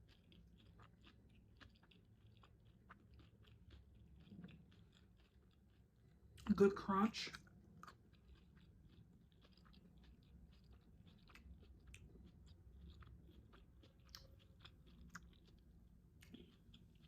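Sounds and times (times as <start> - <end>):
chewing with soft crunches: 0.0 - 17.0.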